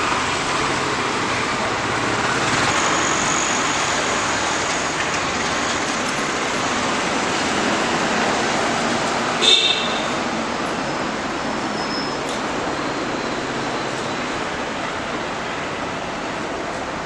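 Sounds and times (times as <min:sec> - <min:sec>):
passing traffic: 0:00.0 - 0:17.0.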